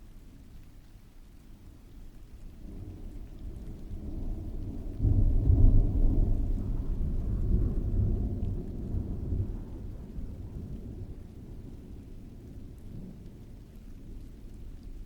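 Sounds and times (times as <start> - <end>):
rain: 0.0 - 15.0
rolling thunder: 2.6 - 13.7.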